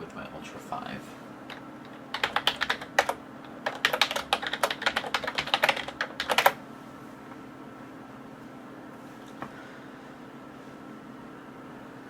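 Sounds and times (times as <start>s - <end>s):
typing on computer keyboard: 1.8s - 6.6s.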